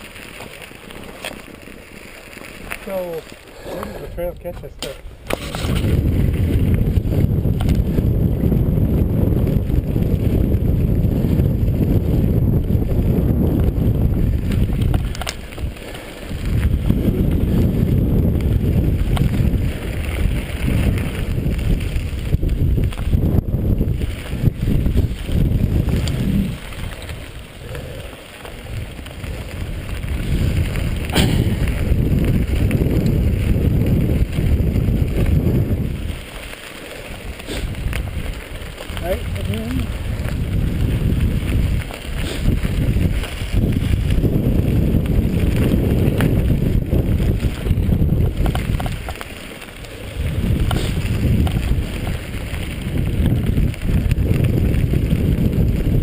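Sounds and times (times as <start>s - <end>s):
bike tyre noise: 0.0s - 56.0s
wind rumble on microphone: 3.9s - 56.0s
rattling clicks over bumps: 14.5s - 15.7s, 48.2s - 50.0s.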